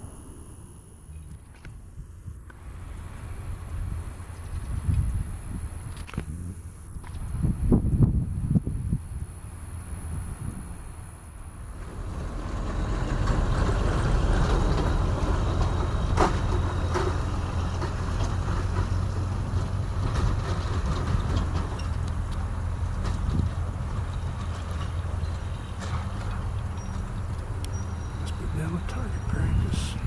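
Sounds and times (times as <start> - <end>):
helicopter drone: 23.6 - 30.0.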